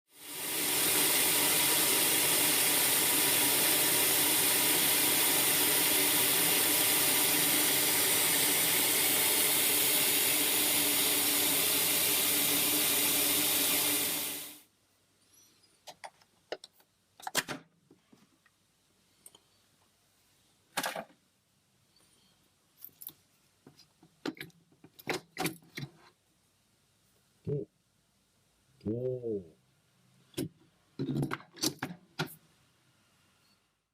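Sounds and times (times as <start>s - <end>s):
rice polisher motor whirring: 0.2s - 14.6s.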